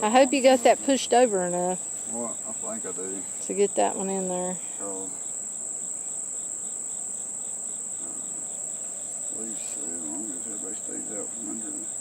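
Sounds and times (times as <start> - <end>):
faint pulsing chirp: 0.0 - 12.0
high-pitched insect trill: 0.0 - 12.0
honey bees buzzing: 0.0 - 12.0.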